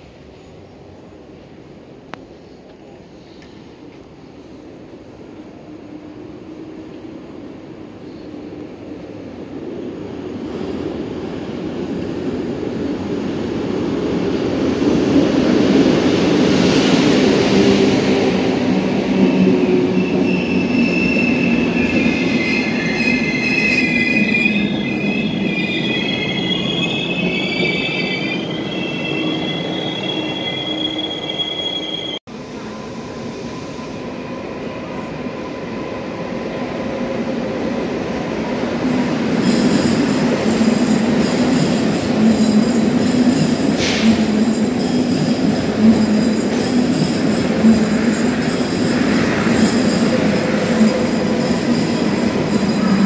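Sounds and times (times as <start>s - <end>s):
train coaches rolling past: 0.0s - 53.0s
brakes and wheels squealing: 39.4s - 53.0s.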